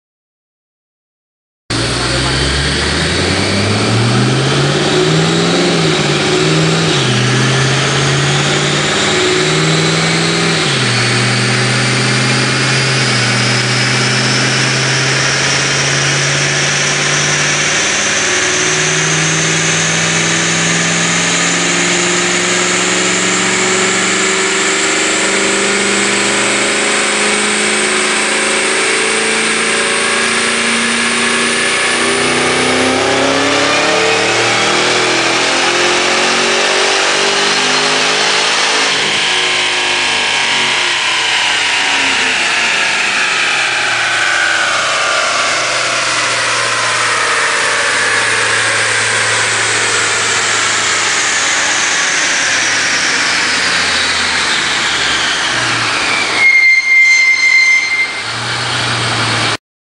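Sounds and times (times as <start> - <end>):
car engine revving through gears: 1.7 - 56.5, 58.0 - 59.6
high whine of dyno rollers: 1.7 - 59.6.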